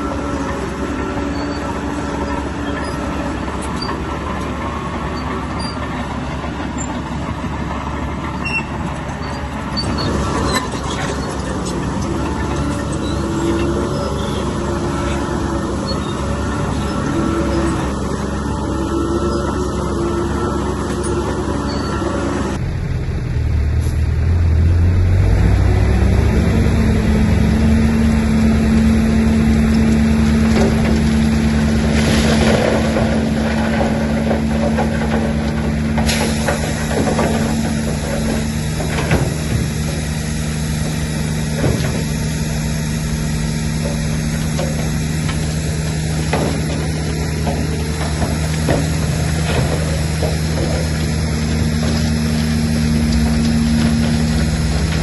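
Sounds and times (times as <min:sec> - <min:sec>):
bulldozer engine under load: 0:00.0 - 0:55.0
metallic knocks and clanks: 0:43.7 - 0:55.0.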